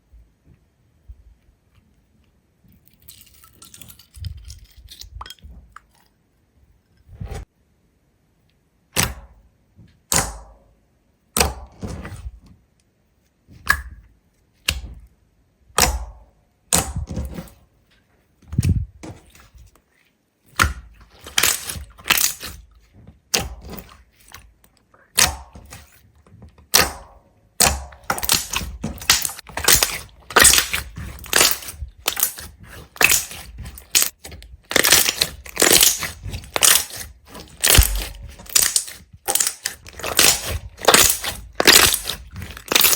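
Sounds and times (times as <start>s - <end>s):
brittle cracks and crunches: 2.8s - 6.1s, 21.1s - 22.7s, 26.7s - 42.9s.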